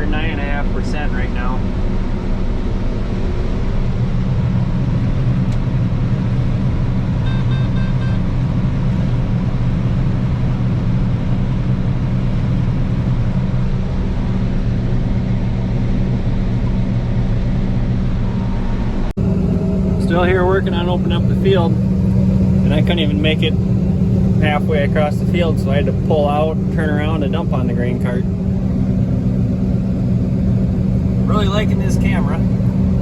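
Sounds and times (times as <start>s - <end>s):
combine harvester humming: 0.0s - 33.0s
high beeps: 7.2s - 8.2s.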